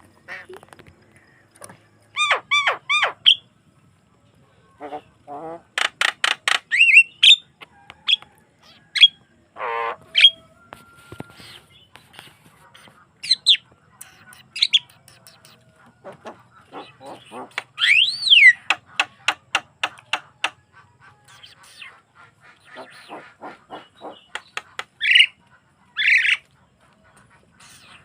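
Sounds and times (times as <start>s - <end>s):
bird singing whistles and clicks: 13.4s - 15.6s, 17.5s - 20.6s.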